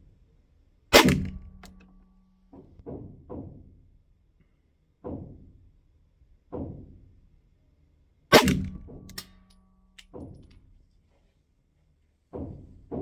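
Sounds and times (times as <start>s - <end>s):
pistol shots: 1.0s - 2.0s, 8.3s - 9.4s.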